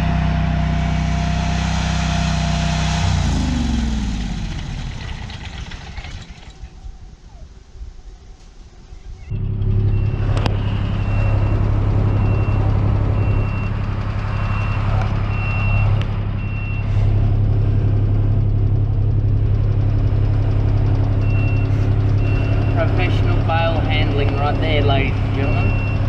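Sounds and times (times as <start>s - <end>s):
diesel engine running: 0.0s - 8.0s, 8.6s - 26.0s
reversing alarm beeping: 9.3s - 16.9s, 21.2s - 26.0s.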